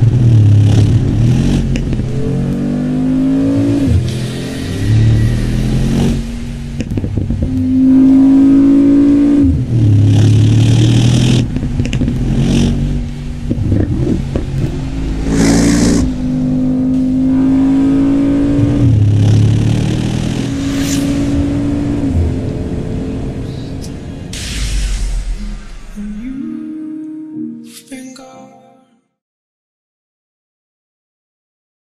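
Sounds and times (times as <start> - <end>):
car engine revving: 0.0 - 26.2
exhaust bursts: 0.5 - 11.6, 12.2 - 26.4.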